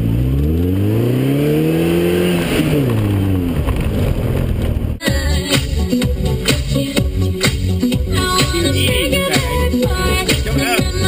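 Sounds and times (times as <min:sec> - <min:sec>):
truck engine revving: 0:00.0 - 0:11.0
music with a beat: 0:05.0 - 0:11.0.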